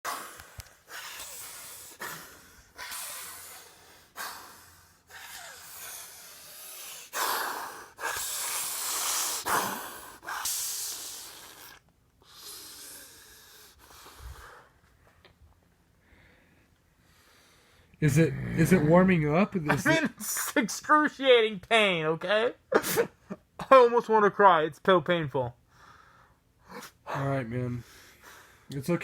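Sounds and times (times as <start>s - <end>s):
man breathing hard in pain: 0.1s - 11.6s.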